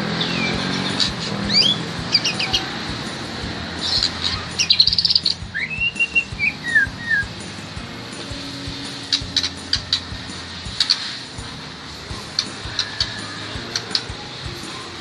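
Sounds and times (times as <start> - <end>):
faint low traffic hum: 0.0 - 15.0
songbird whistling and chirping: 0.2 - 2.7, 3.8 - 7.4.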